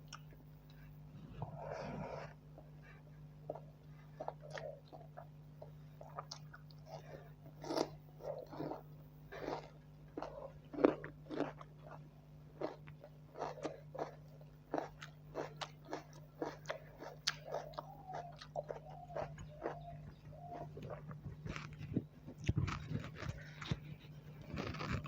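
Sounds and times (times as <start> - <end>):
steady low hum: 0.0 - 25.0
wet chewing and lip smacks: 12.6 - 25.0.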